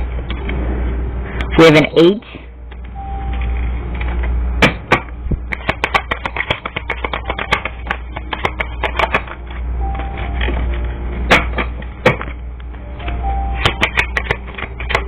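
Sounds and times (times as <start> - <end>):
steady low hum: 0.0 - 15.0
rapid irregular clicking: 4.9 - 9.4.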